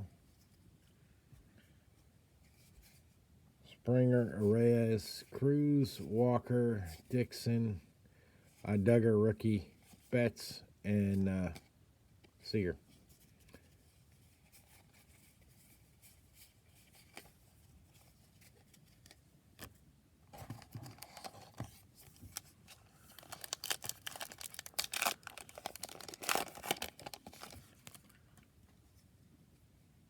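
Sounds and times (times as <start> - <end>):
wrapper tearing and crinkling: 20.6 - 28.1.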